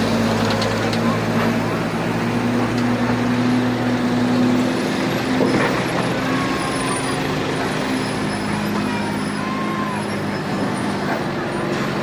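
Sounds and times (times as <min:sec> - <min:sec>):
heavy truck engine running: 0:00.0 - 0:12.0.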